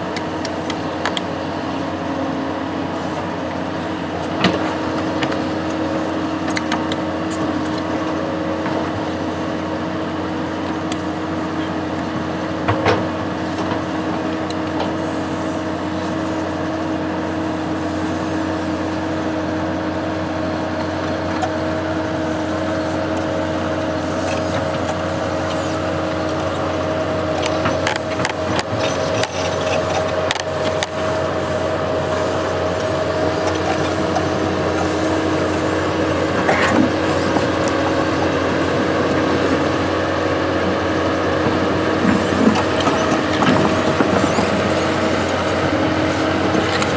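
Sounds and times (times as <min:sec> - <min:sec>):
construction machine engine running: 0:00.0 - 0:46.9.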